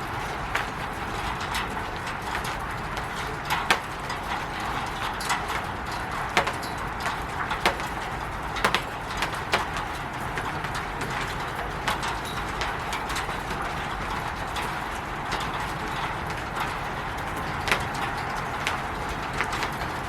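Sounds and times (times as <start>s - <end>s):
rain on a roof: 0.0s - 20.0s
taps and drips: 0.5s - 14.7s.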